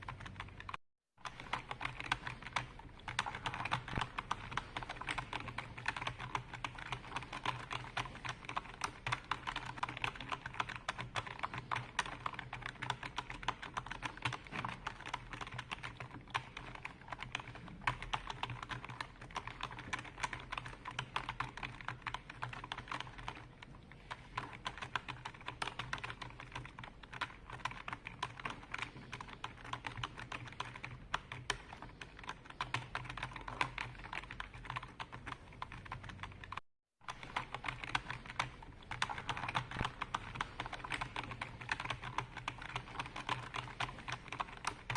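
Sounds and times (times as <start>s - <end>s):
typing on computer keyboard: 0.0s - 44.9s.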